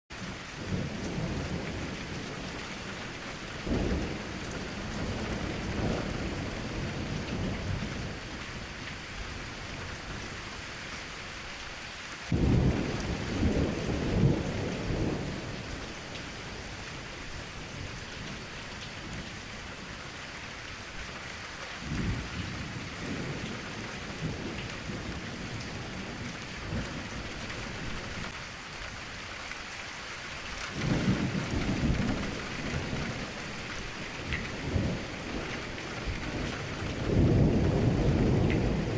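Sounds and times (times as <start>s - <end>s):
steady rain: 0.1s - 38.9s
rolling thunder: 0.2s - 8.7s, 12.3s - 19.9s, 21.8s - 28.4s, 30.7s - 38.9s.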